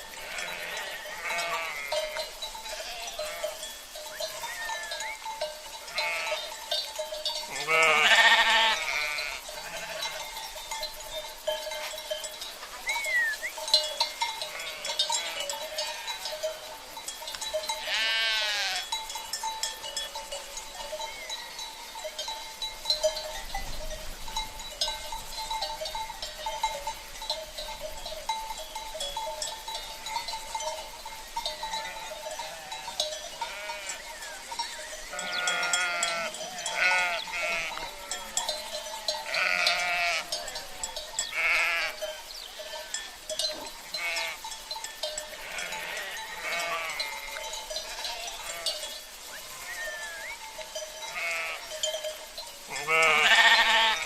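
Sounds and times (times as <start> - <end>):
sheep bells clanking: 0.0 - 54.0
sheep bleating: 0.2 - 3.6, 5.9 - 6.6, 7.4 - 10.3, 14.4 - 16.4, 17.8 - 18.9, 31.8 - 34.4, 35.1 - 38.4, 39.1 - 42.0, 43.9 - 44.4, 45.3 - 48.8, 51.1 - 51.7, 52.7 - 54.0.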